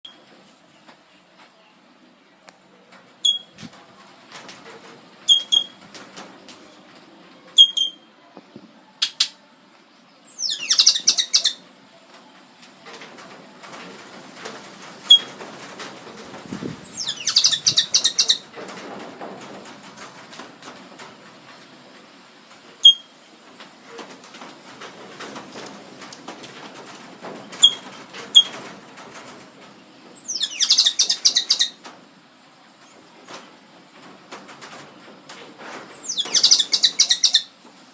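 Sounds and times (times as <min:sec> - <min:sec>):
harsh rattling bird call: 0:10.4 - 0:11.6, 0:16.9 - 0:18.4, 0:30.2 - 0:31.8, 0:36.0 - 0:37.5.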